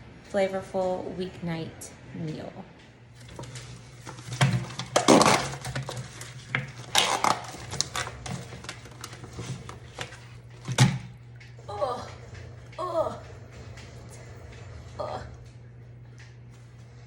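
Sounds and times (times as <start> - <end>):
low steady hum: 0.0 - 17.0
utensils and dishes clattering: 3.2 - 11.2.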